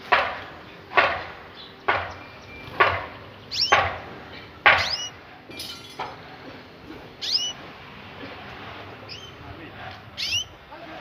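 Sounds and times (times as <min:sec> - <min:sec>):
sharp knocks: 0:00.0 - 0:05.1
birds calling: 0:00.0 - 0:11.0.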